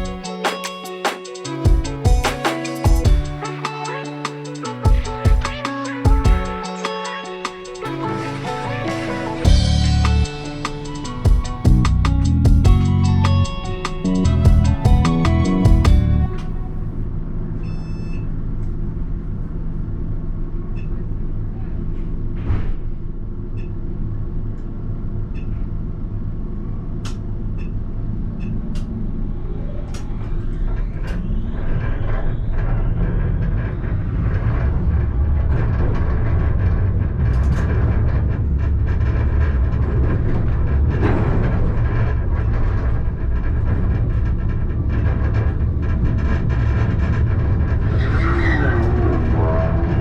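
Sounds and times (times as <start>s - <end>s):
tram wheels rumbling on rail: 27.9s - 50.0s.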